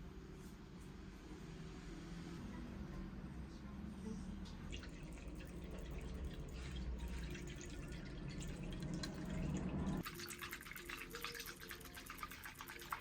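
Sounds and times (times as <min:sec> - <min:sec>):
water dripping: 0:04.7 - 0:13.0.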